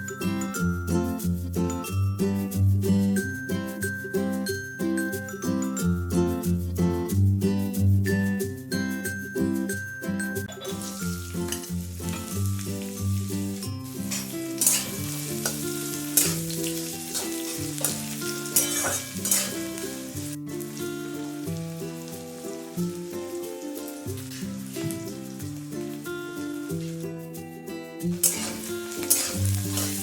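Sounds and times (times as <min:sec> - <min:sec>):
background music: 0:00.0 - 0:30.0
food sizzling in hot oil: 0:10.5 - 0:30.0.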